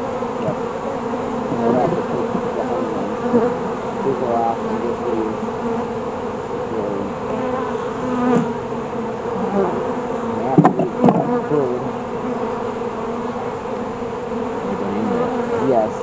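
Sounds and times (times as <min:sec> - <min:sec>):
bees buzzing: 0:00.0 - 0:16.0
sharp knocks: 0:10.5 - 0:11.3.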